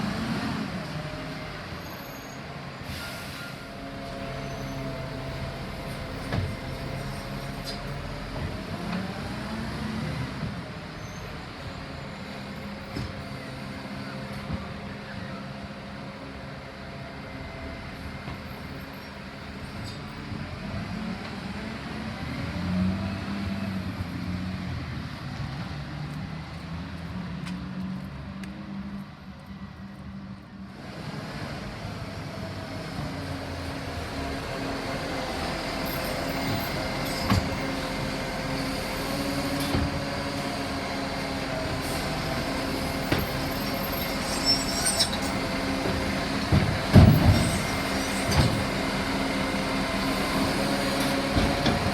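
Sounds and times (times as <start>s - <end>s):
garbage truck diesel engine revving: 45.2s - 51.9s.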